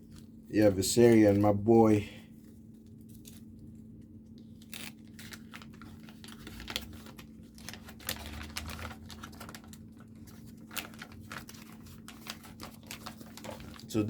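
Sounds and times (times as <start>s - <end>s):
packaging being handled: 4.3s - 14.0s.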